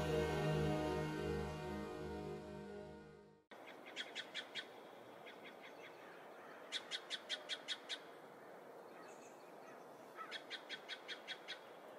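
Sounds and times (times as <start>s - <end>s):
steady low hiss: 0.0s - 3.0s.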